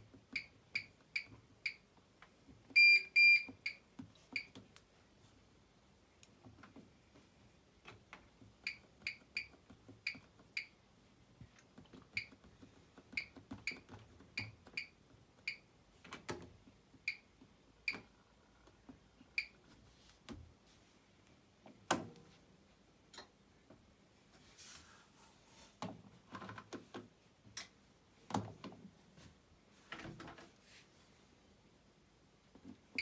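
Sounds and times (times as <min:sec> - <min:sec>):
washing machine beeps: 0:00.3 - 0:01.8, 0:02.7 - 0:04.6, 0:08.6 - 0:10.8, 0:12.1 - 0:12.4, 0:13.2 - 0:15.7, 0:17.1 - 0:17.3, 0:17.9 - 0:18.1, 0:19.4 - 0:19.6.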